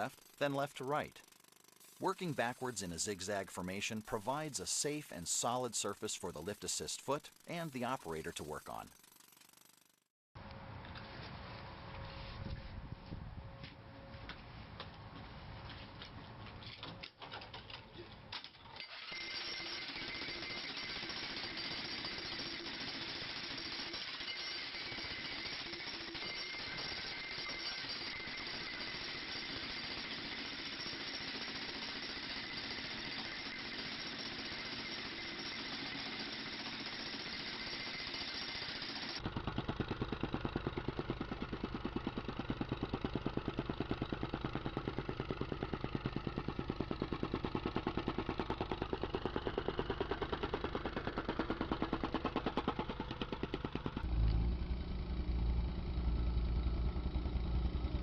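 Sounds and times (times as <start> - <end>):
jackhammer running: 0.0 - 10.1, 18.8 - 58.0.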